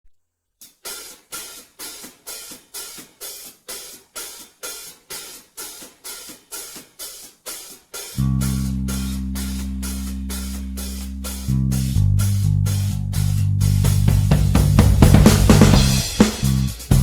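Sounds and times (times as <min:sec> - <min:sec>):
hi-hat strokes: 0:00.6 - 0:17.0
light drum hits: 0:13.8 - 0:17.0.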